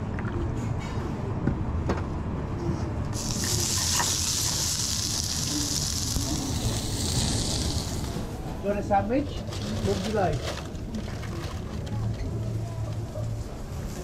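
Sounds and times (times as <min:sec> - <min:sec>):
food sizzling in hot oil: 0:03.2 - 0:08.2.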